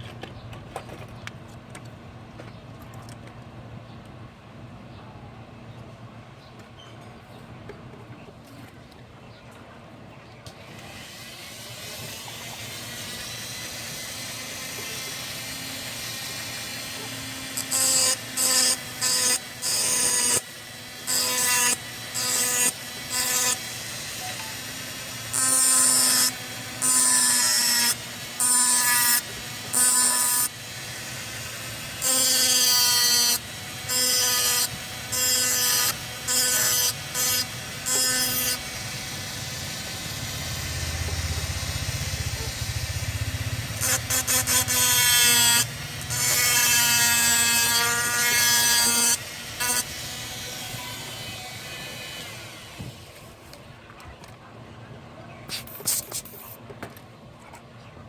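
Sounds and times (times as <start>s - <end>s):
small motorised tool buzzing: 10.7s - 52.9s.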